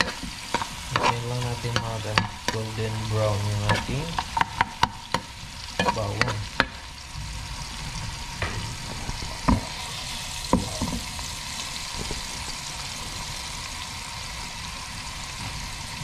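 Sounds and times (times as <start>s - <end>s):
garlic sizzling in a wok: 0.0s - 16.0s.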